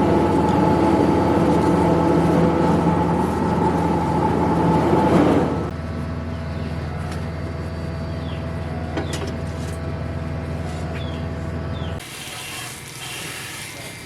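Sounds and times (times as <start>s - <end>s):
motor humming: 0.0s - 5.8s.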